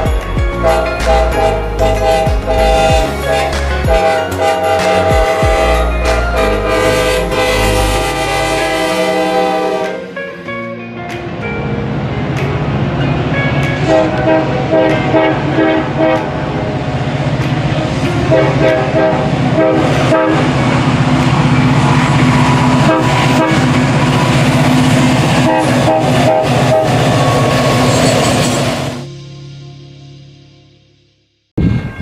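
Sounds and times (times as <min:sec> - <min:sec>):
diesel engine drone: 0:00.0 - 0:10.6, 0:11.3 - 0:30.6
locomotive horn blasts: 0:00.6 - 0:10.5, 0:13.8 - 0:16.5, 0:18.2 - 0:29.0.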